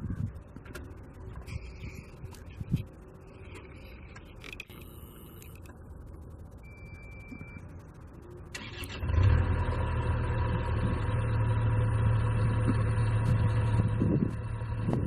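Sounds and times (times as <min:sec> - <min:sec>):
diesel engine starting and idling: 0:06.6 - 0:15.0.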